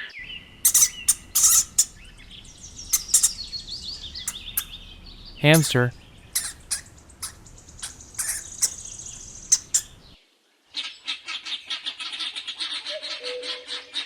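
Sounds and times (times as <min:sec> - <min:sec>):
hamster squeaking: 0:00.6 - 0:10.2.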